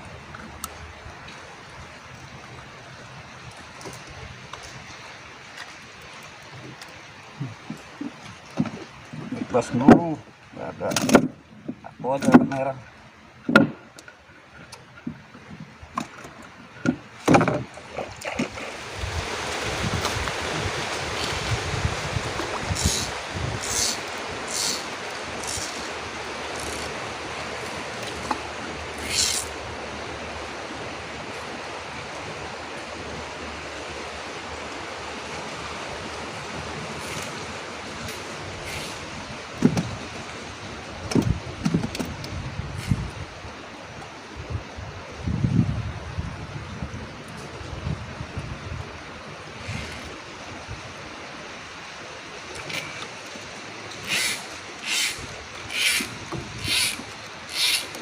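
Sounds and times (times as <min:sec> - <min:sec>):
rushing water: 0:00.0 - 0:58.0
short high hisses: 0:54.1 - 0:57.9.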